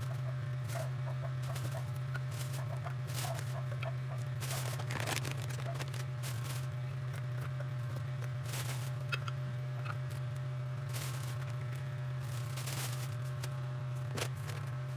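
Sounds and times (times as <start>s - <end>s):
steady low hum: 0.0s - 14.9s
short rustling: 4.4s - 6.7s, 8.4s - 9.0s, 10.9s - 14.6s.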